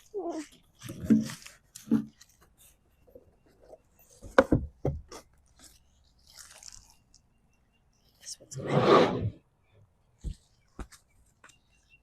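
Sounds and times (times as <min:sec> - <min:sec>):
rubbing and handling sounds: 0:00.0 - 0:07.3.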